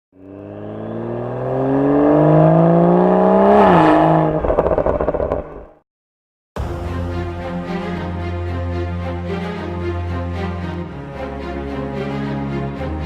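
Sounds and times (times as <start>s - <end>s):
car engine accelerating: 0.1s - 5.8s
exhaust crackles and pops: 4.4s - 5.8s.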